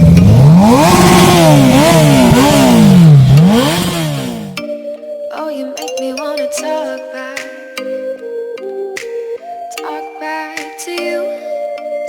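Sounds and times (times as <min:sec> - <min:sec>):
motorcycle engine revving: 0:00.0 - 0:04.6
music with bell-like tones: 0:04.6 - 0:12.0.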